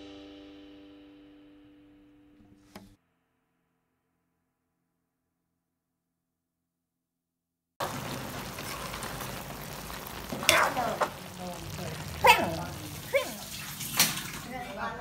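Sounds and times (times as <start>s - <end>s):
food sizzling in a wok: 7.8s - 14.8s.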